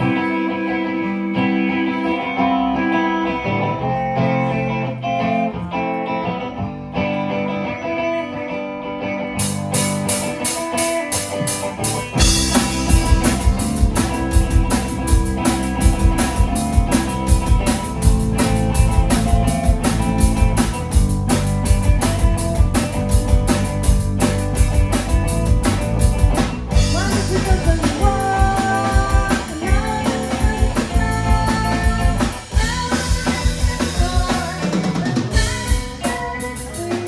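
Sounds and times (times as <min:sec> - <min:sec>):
bass guitar notes: 0:00.0 - 0:37.0
guitar: 0:00.0 - 0:37.0
drum kit: 0:09.4 - 0:37.0.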